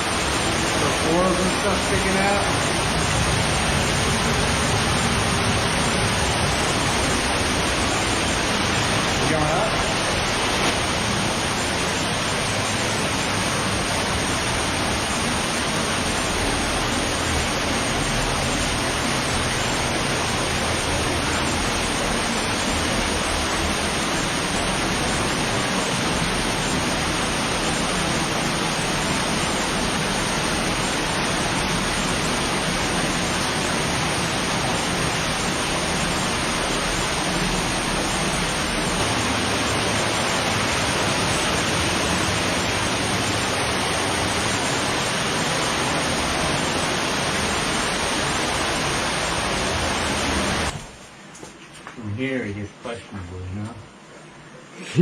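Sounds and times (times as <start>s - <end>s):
cave stream rushing: 0.0s - 51.5s.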